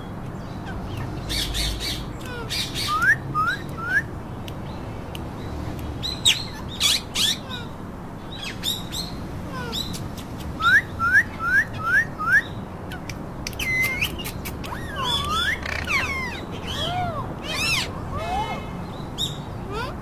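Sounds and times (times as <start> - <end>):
parakeet whistling and chirping: 13.6 - 18.5.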